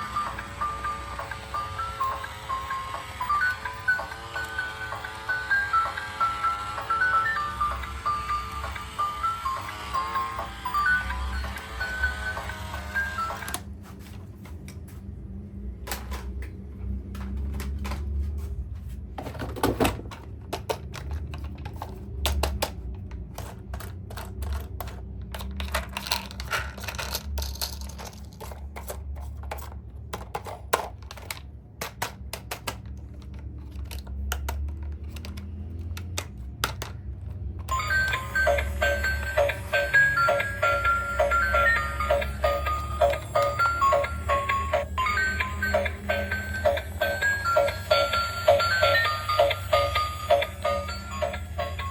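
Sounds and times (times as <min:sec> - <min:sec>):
toys and packaging handled: 0:17.2 - 0:51.9.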